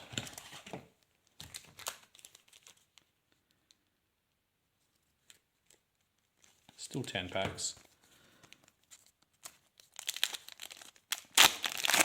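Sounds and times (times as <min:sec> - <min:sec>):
foil card packs crinkling: 0:08.4 - 0:12.0.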